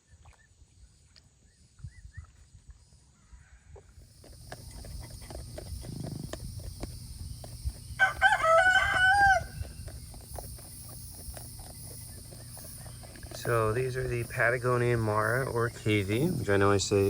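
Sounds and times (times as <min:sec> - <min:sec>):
rooster crowing: 0:07.9 - 0:09.8.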